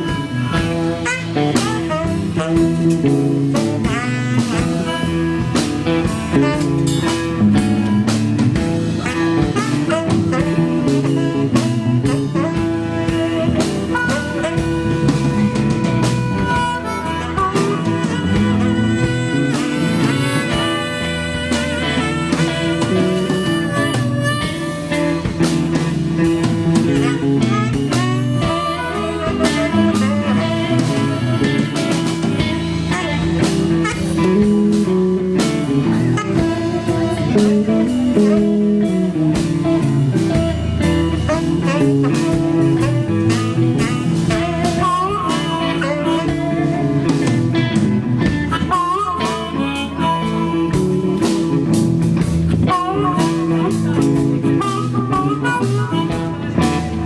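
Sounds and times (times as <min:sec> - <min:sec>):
bass guitar: 0:00.0 - 0:57.0
drums: 0:00.0 - 0:57.0
lead guitar bending notes: 0:00.0 - 0:57.0.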